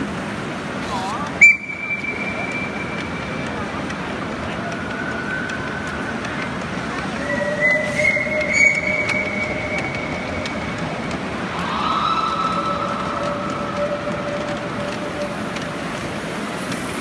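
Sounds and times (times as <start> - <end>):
miniature train rolling rumble: 0.0 - 17.0
high-pitched wheel squeal: 7.1 - 15.4.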